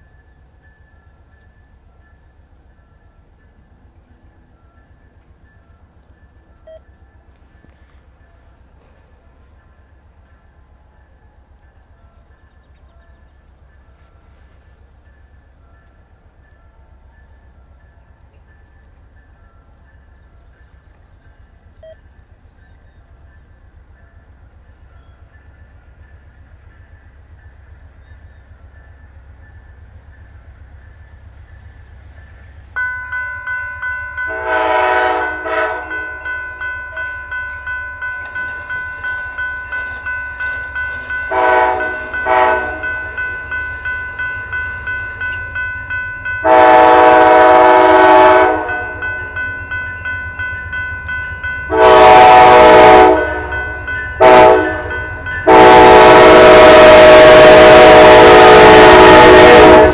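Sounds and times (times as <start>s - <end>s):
bell ringing: 32.8s - 56.2s
locomotive air horn: 33.2s - 50.2s, 51.6s - 59.9s.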